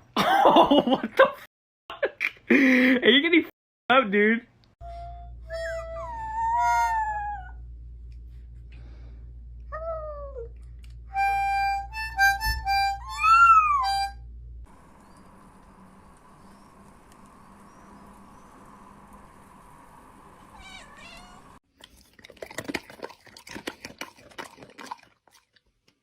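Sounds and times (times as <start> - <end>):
short held harmonica-like notes: 11.1 - 13.2
low hum: 14.0 - 21.6
cat meowing: 20.5 - 21.6.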